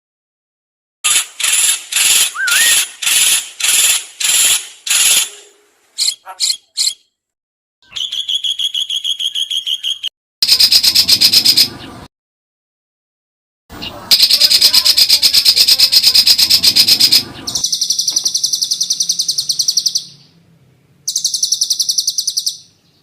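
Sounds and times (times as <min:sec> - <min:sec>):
bird chatter: 0:01.1 - 0:07.1, 0:07.9 - 0:12.1, 0:13.8 - 0:20.4, 0:21.0 - 0:23.0
bird trill: 0:01.1 - 0:07.2, 0:07.8 - 0:11.9, 0:13.8 - 0:20.4, 0:21.0 - 0:23.0
songbird calls: 0:02.2 - 0:07.1, 0:07.8 - 0:11.9, 0:13.8 - 0:20.4, 0:21.0 - 0:23.0.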